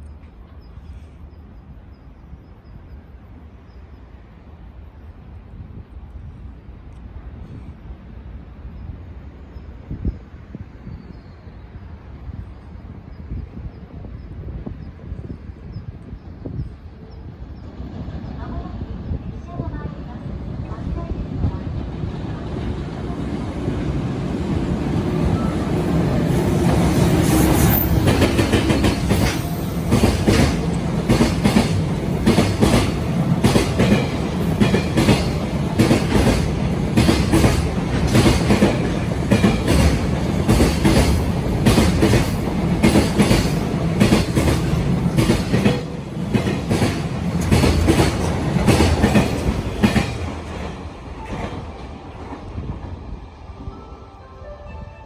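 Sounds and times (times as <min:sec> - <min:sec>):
wagons clattering over rail joints: 0:25.3 - 0:51.7.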